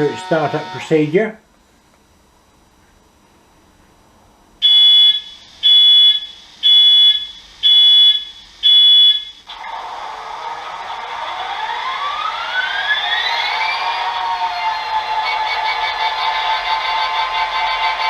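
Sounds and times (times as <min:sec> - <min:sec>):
hiss with rising whining tones: 0:00.0 - 0:01.4, 0:09.4 - 0:18.0
loud electronic beeps: 0:04.6 - 0:09.5.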